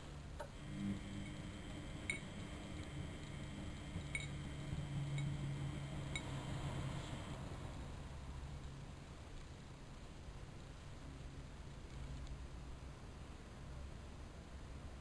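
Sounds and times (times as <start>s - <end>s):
washing machine motor hum: 0.0s - 9.3s.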